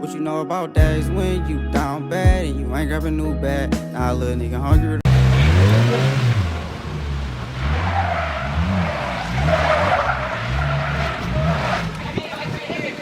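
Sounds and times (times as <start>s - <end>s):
car engine revving: 5.1s - 12.4s
tyres squealing: 5.2s - 13.0s.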